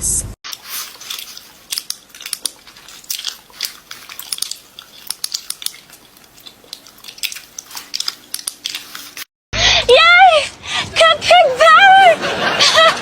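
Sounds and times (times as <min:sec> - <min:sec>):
crisp crunching and clicking: 0:00.4 - 0:09.3.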